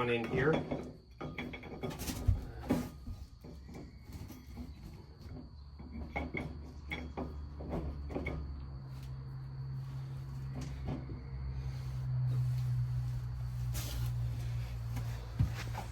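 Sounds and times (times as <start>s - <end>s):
light metal clunks and taps: 3.0s - 8.6s.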